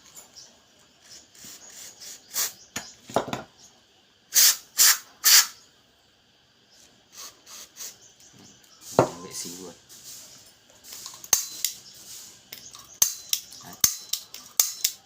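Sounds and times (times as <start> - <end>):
aerosol spray hissing: 1.4 - 2.6, 4.3 - 5.6, 7.1 - 8.1, 8.7 - 13.1.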